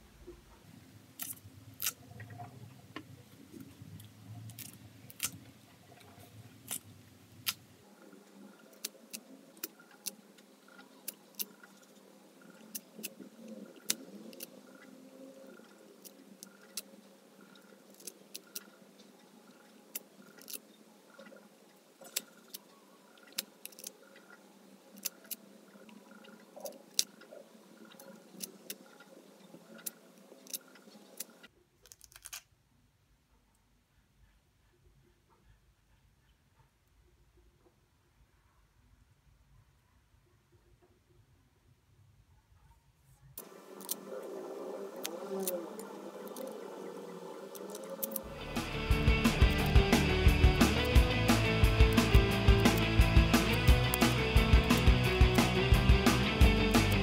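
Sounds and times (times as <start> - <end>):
fruit pieces snapping apart: 1.2 - 2.0, 4.5 - 5.4.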